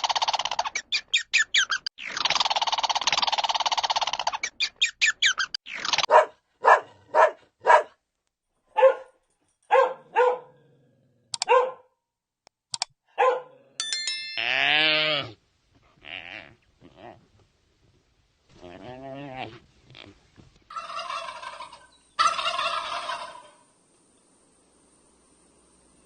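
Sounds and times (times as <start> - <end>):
dog barking: 6.0 - 8.0, 8.7 - 10.6, 11.4 - 12.0, 13.1 - 13.6
drawn-out call falling in pitch: 20.7 - 23.7.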